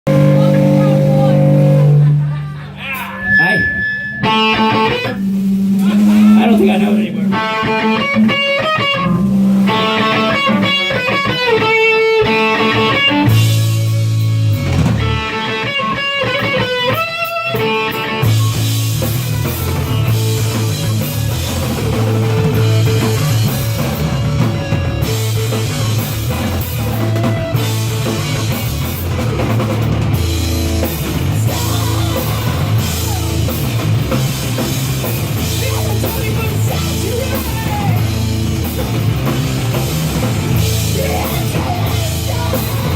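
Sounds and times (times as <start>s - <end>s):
drums: 0.0s - 42.9s
electric guitar notes: 0.0s - 42.9s
rock band playing live: 0.0s - 42.9s
low held bass note: 0.1s - 2.6s, 3.2s - 9.9s.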